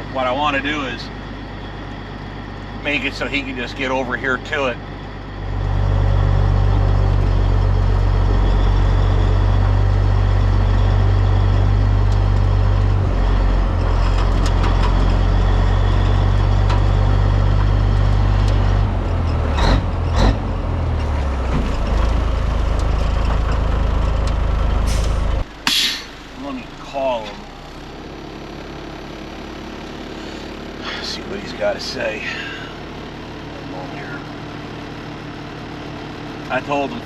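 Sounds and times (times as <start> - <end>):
truck diesel engine running: 0.0 - 37.0
air brake hisses: 24.9 - 26.2.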